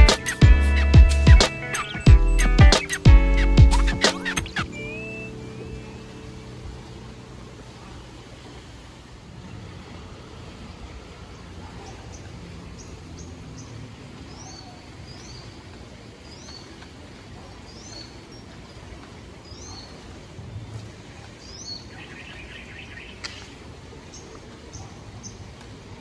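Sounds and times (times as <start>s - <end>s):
rapid buzzing trill: 0.0s - 6.0s
high falling bird chirps: 0.0s - 6.3s.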